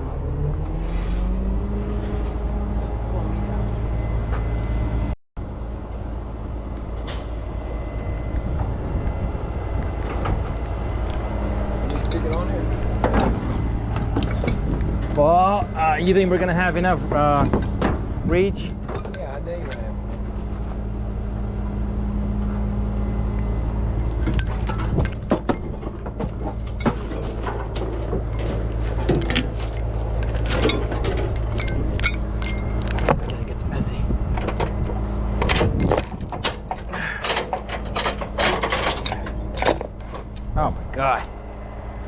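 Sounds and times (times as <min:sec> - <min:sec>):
large engine rumbling: 0:00.0 - 0:42.0
sharp metal clanks and knocks: 0:11.8 - 0:20.8, 0:24.0 - 0:40.6.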